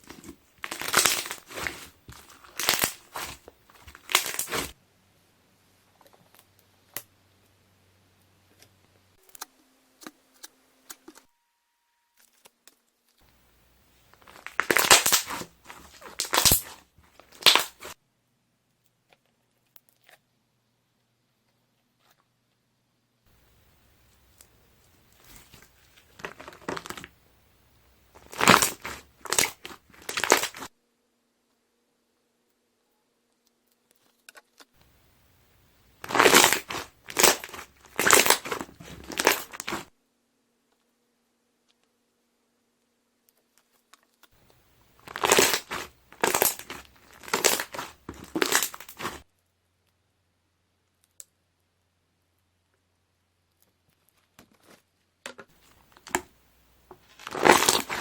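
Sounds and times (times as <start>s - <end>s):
slime squishing and popping: 0.0s - 4.7s, 14.2s - 17.9s, 28.2s - 30.7s, 36.0s - 39.9s, 45.0s - 49.2s, 57.0s - 58.0s
slime air bubbles crackling: 45.0s - 49.2s, 57.2s - 58.0s.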